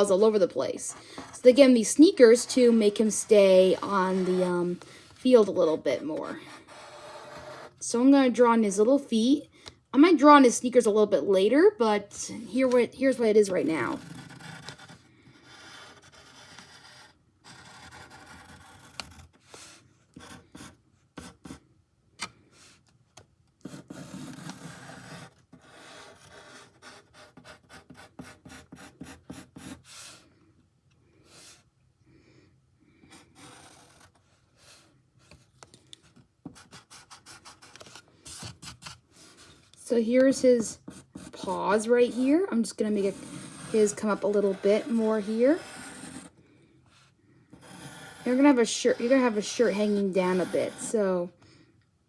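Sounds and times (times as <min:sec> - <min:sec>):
drawing tool scratching on paper: 0:00.9 - 0:07.8, 0:13.7 - 0:21.6, 0:23.6 - 0:30.2, 0:33.1 - 0:34.9, 0:36.5 - 0:39.6, 0:40.8 - 0:46.3, 0:47.0 - 0:51.1.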